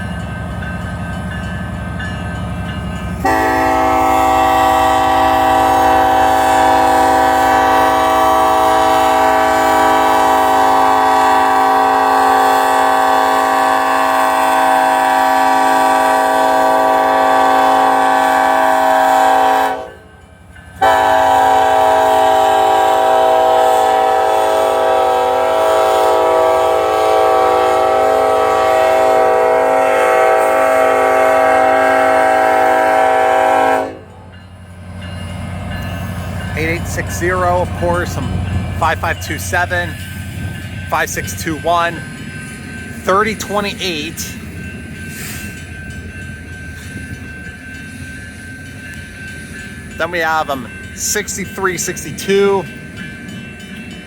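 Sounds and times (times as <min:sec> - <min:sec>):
train air horn blasts: 0:03.2 - 0:20.1, 0:20.8 - 0:34.1.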